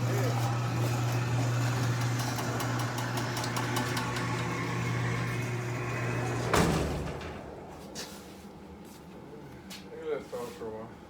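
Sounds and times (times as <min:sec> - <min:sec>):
garage door motor hum: 0:00.0 - 0:08.0
garage door thud: 0:03.8 - 0:07.8.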